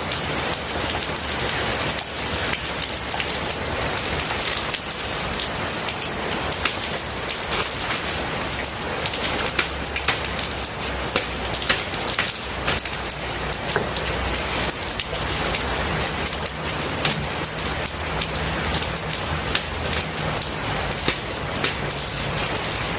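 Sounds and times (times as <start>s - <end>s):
raindrops ticking on a surface: 0.0s - 22.9s
steady rain falling: 0.0s - 22.9s.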